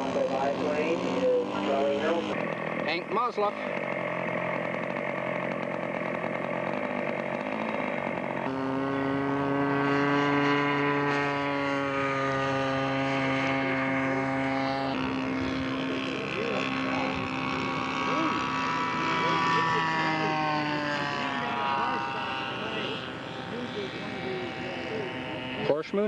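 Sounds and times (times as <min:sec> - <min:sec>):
model airplane engine buzzing: 0:00.0 - 0:26.0.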